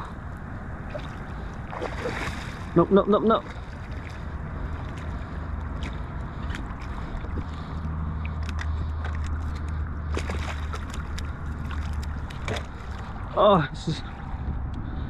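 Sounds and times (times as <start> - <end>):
water sloshing around kayak: 0.0 - 13.4.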